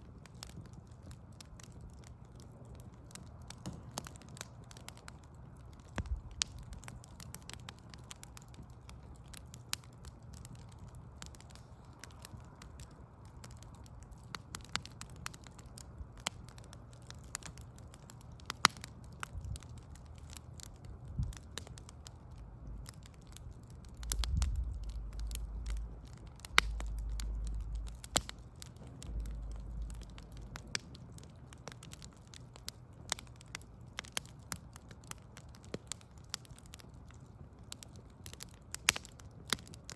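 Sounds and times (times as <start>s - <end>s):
low background hum: 0.0s - 39.8s
fire popping: 0.0s - 39.9s
wood fire crackling: 0.0s - 39.9s
deep low rumble: 22.3s - 31.0s.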